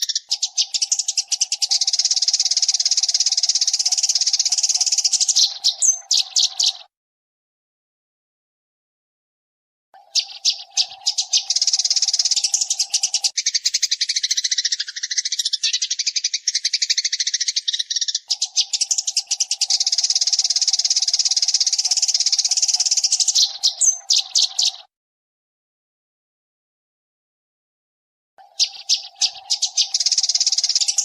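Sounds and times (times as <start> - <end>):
sparrows chirping: 0.0 - 6.9, 10.0 - 24.9, 28.4 - 31.0.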